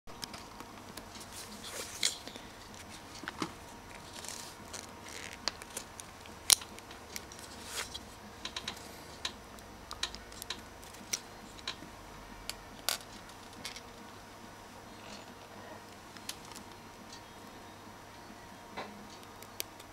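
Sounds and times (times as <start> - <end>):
rustling scrapes: 1.1 - 3.2, 7.4 - 8.2
sharp clicks and ticks: 8.4 - 11.9.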